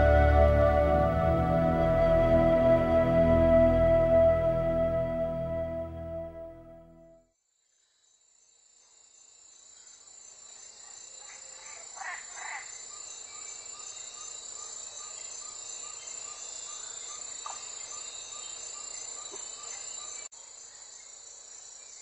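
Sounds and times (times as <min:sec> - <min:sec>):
crickets and insects chirring: 0:07.6 - 0:22.0
short insect calls: 0:07.7 - 0:22.0.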